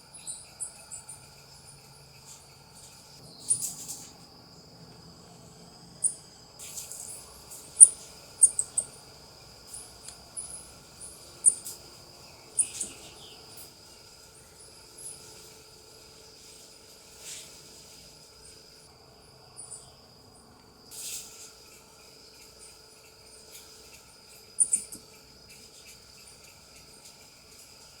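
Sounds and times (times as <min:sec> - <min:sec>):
insects droning: 0:00.0 - 0:28.0
coatis chirping and squeaking: 0:07.8 - 0:08.9, 0:12.6 - 0:13.0, 0:24.6 - 0:25.0.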